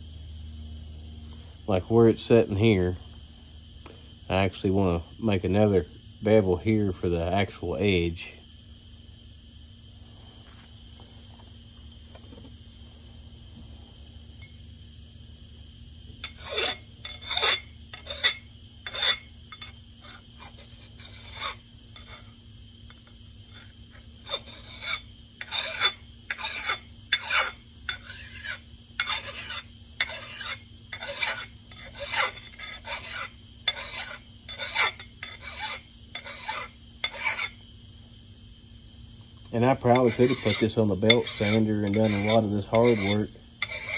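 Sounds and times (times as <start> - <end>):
file rasping on steel: 16.2 - 22.4, 23.5 - 37.6, 39.6 - 43.9.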